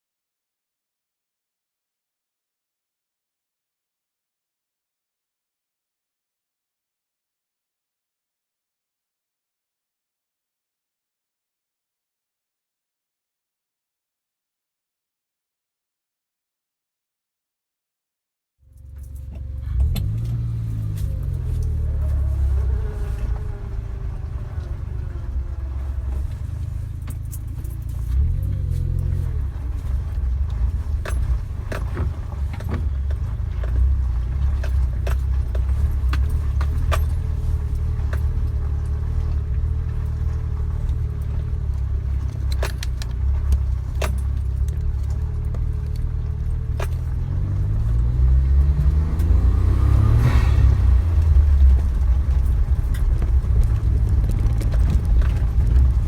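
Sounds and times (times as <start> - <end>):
engine rumbling and revving: 18.6 - 56.0
vehicle pushing through tall grass: 18.8 - 56.0
clicks and rattles: 26.0 - 47.8, 51.2 - 56.0.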